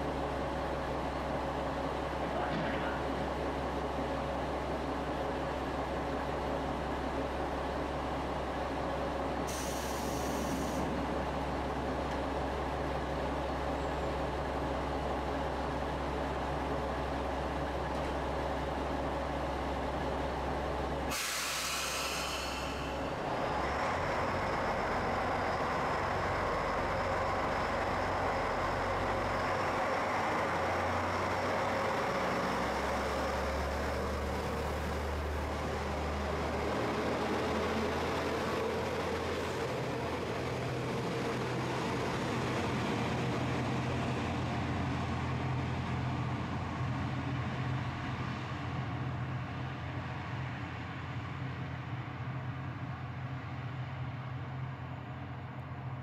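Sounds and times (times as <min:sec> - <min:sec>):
diesel railcar engine: 0:00.0 - 0:56.0
compressed air hiss: 0:09.5 - 0:10.8, 0:21.1 - 0:23.0.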